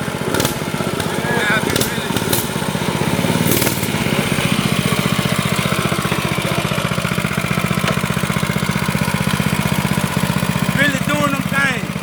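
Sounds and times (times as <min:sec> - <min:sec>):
mini motorcycle engine idling: 0:00.0 - 0:12.0.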